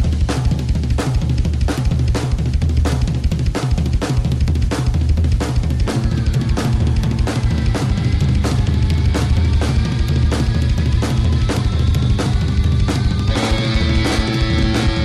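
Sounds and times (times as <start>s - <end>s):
bass: 0.0s - 15.0s
drum kit playing steady beat: 0.0s - 15.0s
held pitched instrument line: 13.2s - 15.0s.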